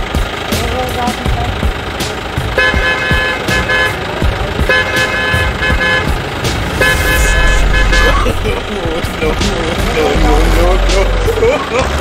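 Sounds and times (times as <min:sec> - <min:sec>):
steady rumble: 0:06.0 - 0:10.0.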